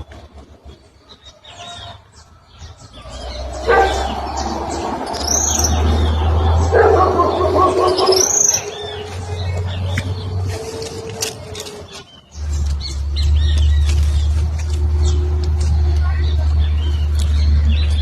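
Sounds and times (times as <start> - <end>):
small birds chirping: 0.0 - 18.0
steady low rumble: 2.8 - 11.2
rough noise: 2.9 - 18.0.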